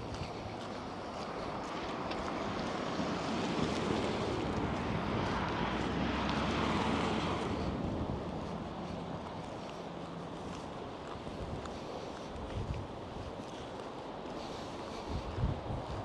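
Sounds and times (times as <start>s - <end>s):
vehicle driving past: 1.5s - 10.7s.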